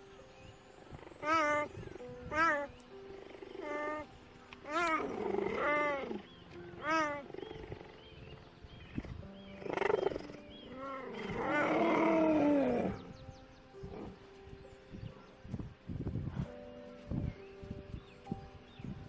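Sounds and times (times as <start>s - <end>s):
animal calling: 1.1s - 13.2s.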